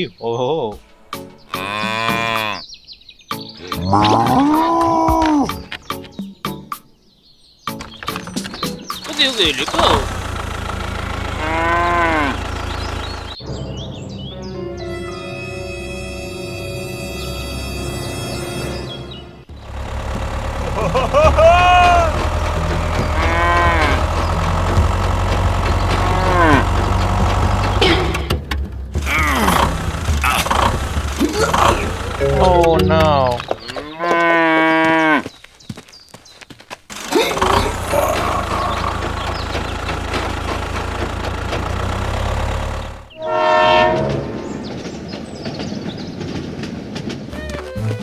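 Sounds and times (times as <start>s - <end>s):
drawn-out rising and falling calls: 7.6s - 13.4s, 14.4s - 28.2s, 29.0s - 47.3s
low engine-like hum: 9.4s - 13.4s, 19.5s - 33.4s, 37.3s - 45.8s
horn blast: 14.5s - 24.8s, 30.4s - 33.3s, 43.1s - 44.8s.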